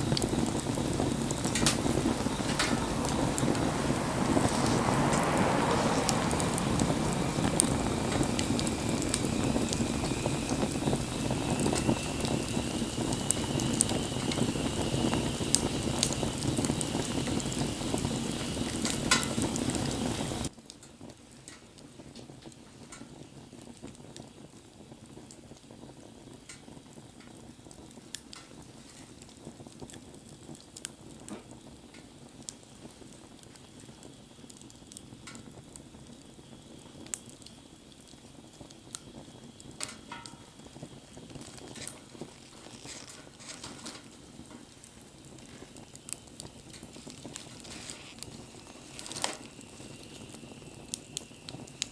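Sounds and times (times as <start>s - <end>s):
faint rising whistle: 0.0s - 19.0s
wood fire hissing and crackling: 0.0s - 51.9s.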